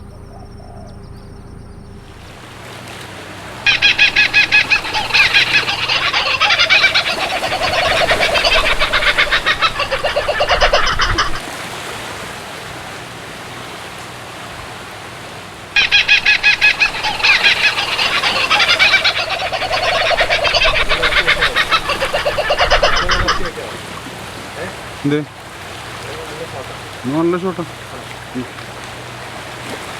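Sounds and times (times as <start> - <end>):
poultry calling in rattling runs: 3.7 - 11.5, 15.8 - 23.6.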